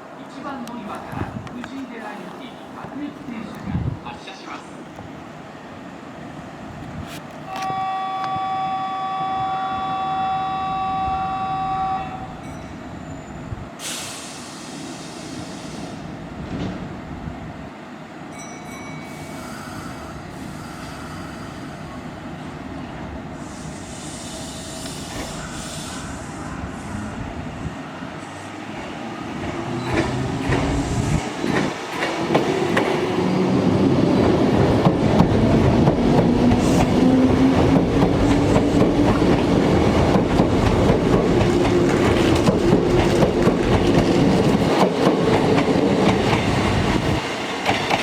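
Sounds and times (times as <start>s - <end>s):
electric train two-tone horn: 7.5s - 12.4s
train rail rumble: 19.1s - 48.0s.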